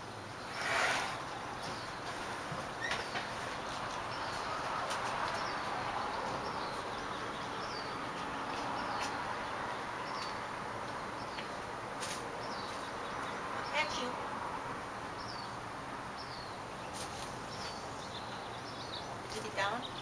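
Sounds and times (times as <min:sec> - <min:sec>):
steady outdoor hiss: 0:00.0 - 0:20.0
small bird chirping: 0:16.2 - 0:20.0.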